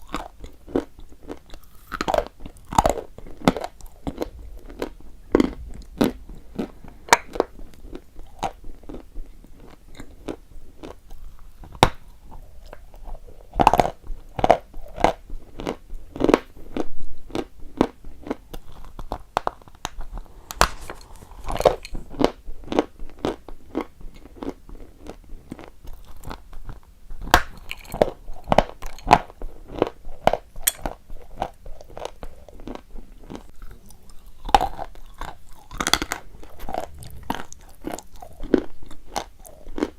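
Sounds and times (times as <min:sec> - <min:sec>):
person crunching chalk: 0:20.4 - 0:22.0.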